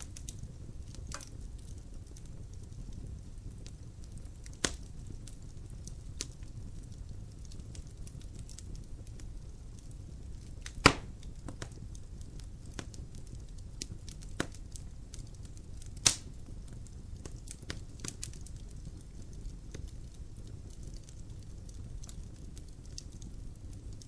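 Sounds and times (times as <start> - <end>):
wood fire crackling: 0.0 - 24.0
loud sharp pops: 10.7 - 11.7, 16.0 - 16.2.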